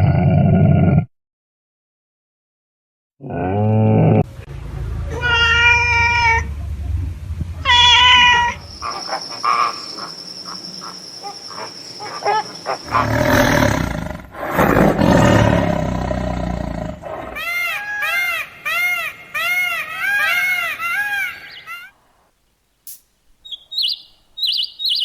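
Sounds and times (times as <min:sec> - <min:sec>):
low rumble: 0:04.2 - 0:09.3
animal cries: 0:05.1 - 0:06.5, 0:07.6 - 0:14.1, 0:17.1 - 0:22.0
harsh noisy animal calls: 0:07.6 - 0:22.3, 0:23.4 - 0:25.0.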